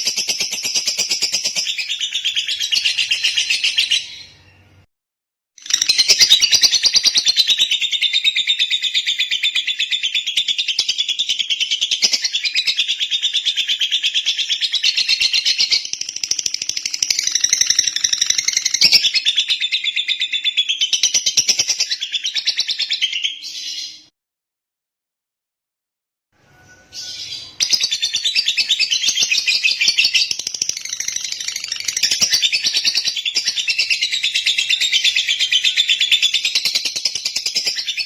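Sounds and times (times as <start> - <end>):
lovebird chirping: 0.0 - 4.8, 5.6 - 24.1, 26.5 - 38.0.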